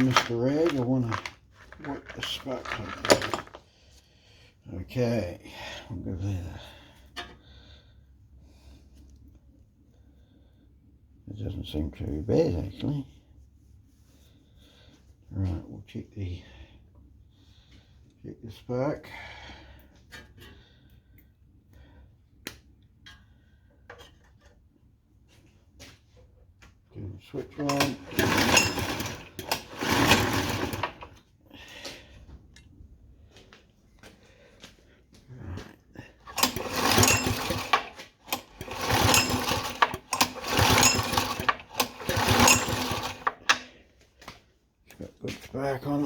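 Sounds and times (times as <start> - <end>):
engine recoil starter pulled: 0.0 - 3.6, 27.4 - 31.2, 36.2 - 43.8.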